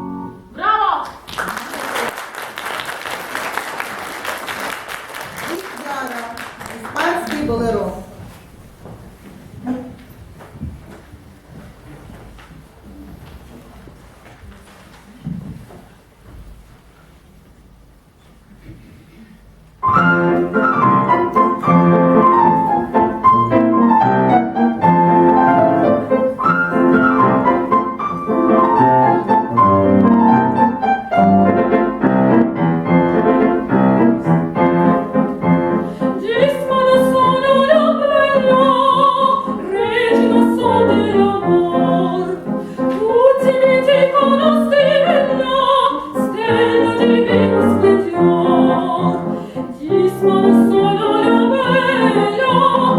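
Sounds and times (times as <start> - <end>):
grand piano: 0.0 - 1.0, 19.4 - 52.9
woman singing operatically: 36.2 - 42.4, 43.0 - 49.2, 49.8 - 52.9.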